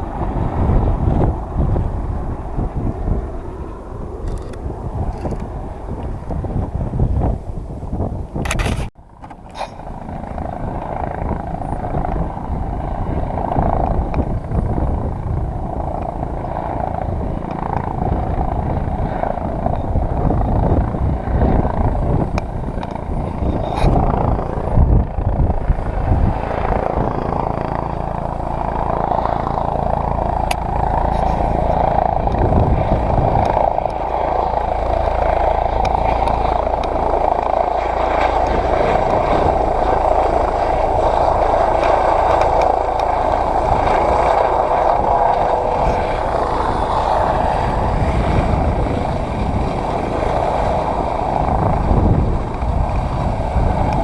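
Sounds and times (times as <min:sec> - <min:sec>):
helicopter rotor and turbine: 0:00.0 - 0:54.0.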